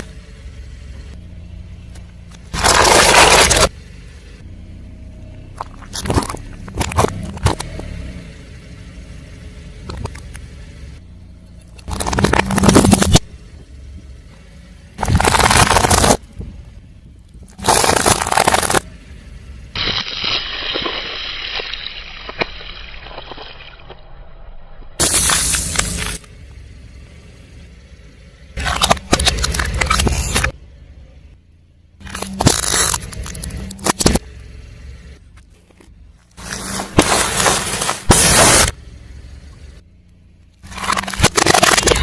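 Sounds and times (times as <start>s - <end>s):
car tyre crushing crunchy objects: 1.8s - 3.8s, 5.2s - 8.9s, 9.7s - 24.0s, 25.0s - 27.1s, 28.4s - 30.6s, 32.0s - 39.8s, 40.5s - 42.0s.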